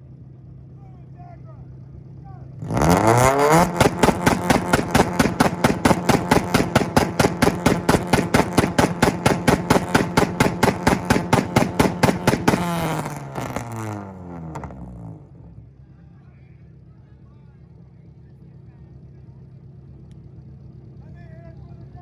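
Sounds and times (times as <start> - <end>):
exhaust pops and bangs: 2.6 - 14.9
car engine on rev limiter: 2.6 - 15.5.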